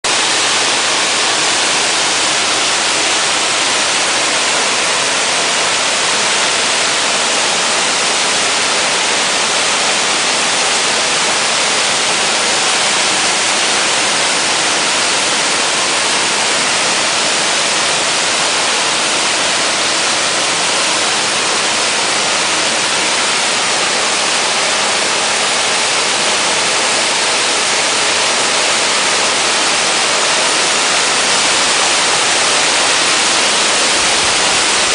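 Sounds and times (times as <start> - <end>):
waterfall crashing: 0.0 - 34.9.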